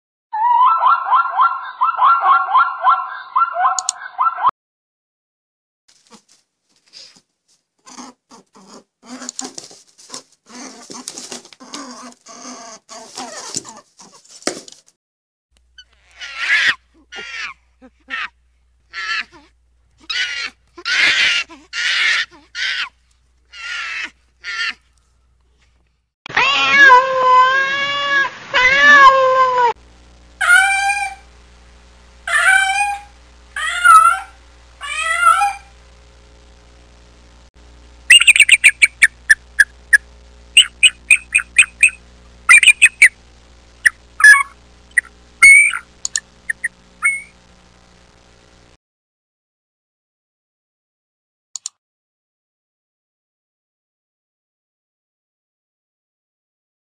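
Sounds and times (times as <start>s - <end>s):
short high animal calls: 15.8s - 17.6s, 30.4s - 31.3s, 32.3s - 35.7s, 38.1s - 40.0s, 40.6s - 43.2s, 43.8s - 47.3s
cat meowing: 26.3s - 29.7s, 32.3s - 35.7s
bird calling high notes: 38.1s - 39.7s, 40.6s - 43.2s, 43.8s - 47.3s.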